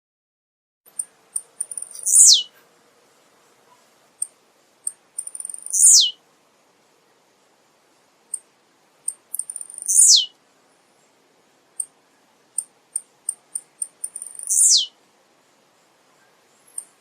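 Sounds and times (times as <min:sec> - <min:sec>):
bird buzzy descending song: 0:01.7 - 0:02.5, 0:05.4 - 0:06.2, 0:09.5 - 0:10.3, 0:14.1 - 0:14.9.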